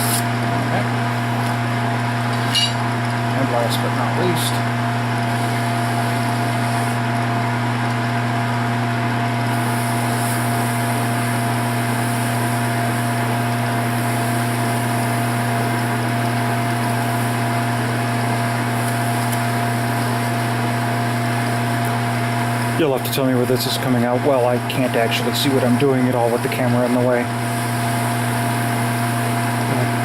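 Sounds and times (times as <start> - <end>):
lathe motor hum and whine: 0.0 - 30.0.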